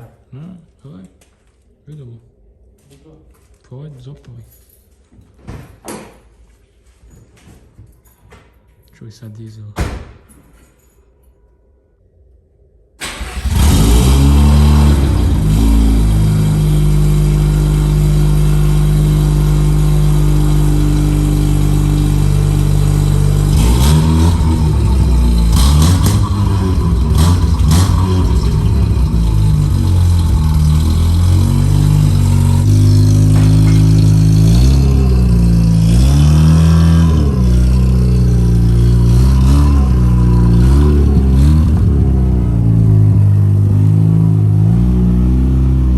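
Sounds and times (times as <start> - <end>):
rotary engine running and revving: 13.3 - 45.9.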